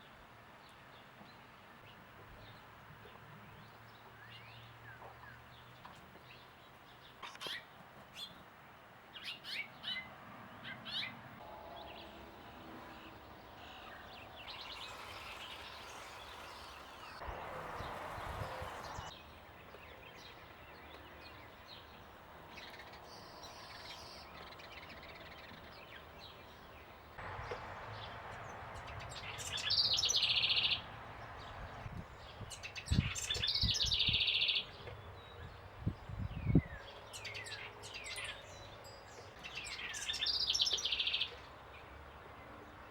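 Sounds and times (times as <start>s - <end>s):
small birds chirping and calling: 4.0s - 8.4s, 9.2s - 11.2s, 12.9s - 22.0s, 22.6s - 41.5s.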